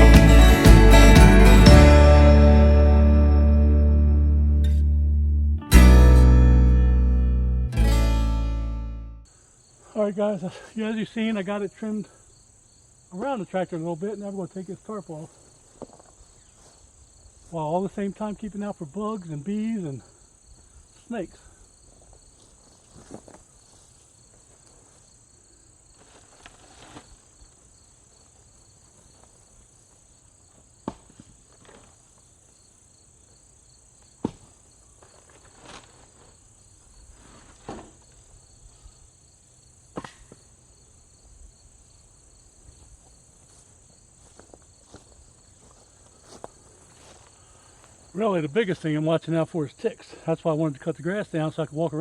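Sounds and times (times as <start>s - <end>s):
insects chirring: 9.2s - 52.0s
rustles: 14.5s - 17.6s, 19.6s - 39.2s, 41.2s - 48.2s.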